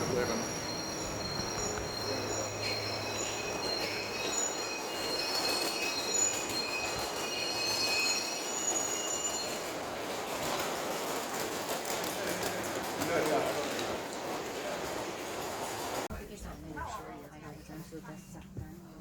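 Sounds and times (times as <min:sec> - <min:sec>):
train wheels squealing: 0:00.0 - 0:11.2
rail noise rumble: 0:00.0 - 0:16.1.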